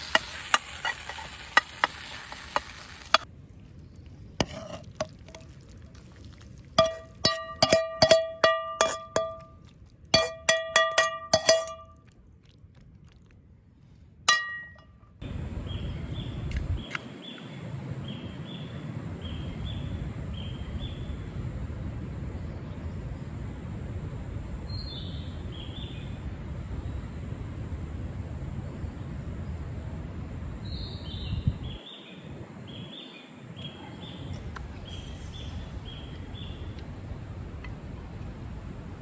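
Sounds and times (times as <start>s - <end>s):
outdoor ambience: 0.0s - 39.0s
metal ladle striking a wok: 6.8s - 9.6s, 10.2s - 12.0s, 14.3s - 14.9s.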